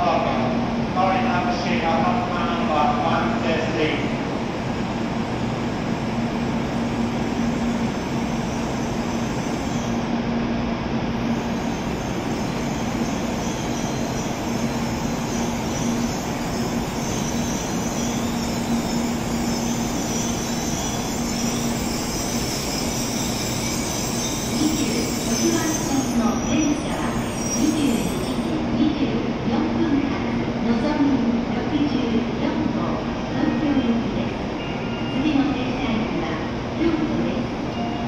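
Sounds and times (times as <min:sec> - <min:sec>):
train rumbling and humming: 0:00.0 - 0:38.0
train brakes hissing: 0:07.4 - 0:10.1, 0:11.3 - 0:28.6.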